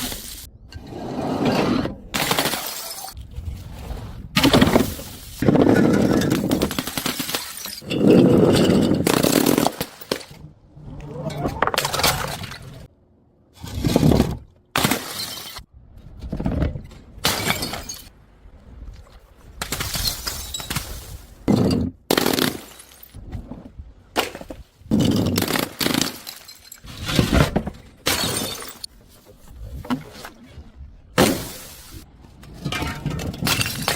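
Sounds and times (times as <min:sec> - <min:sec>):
glass bottles smashing: 0:02.2 - 0:03.2, 0:04.4 - 0:10.3, 0:14.8 - 0:15.6, 0:17.2 - 0:18.1, 0:19.8 - 0:23.2, 0:25.0 - 0:27.1, 0:28.1 - 0:28.9, 0:32.7 - 0:33.9.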